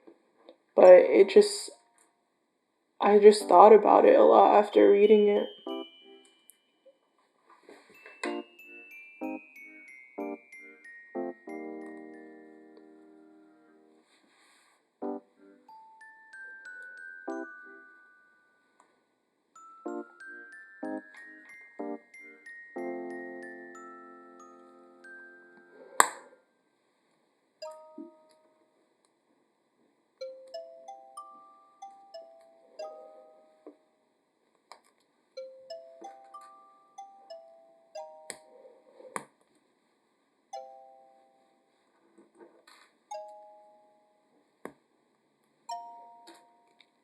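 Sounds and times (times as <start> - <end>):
gentle chime-like melody: 3.2 - 14.3, 15.0 - 26.4, 27.6 - 28.7, 30.2 - 34.1, 35.4 - 39.2, 40.5 - 42.0, 43.1 - 44.5, 45.7 - 47.0.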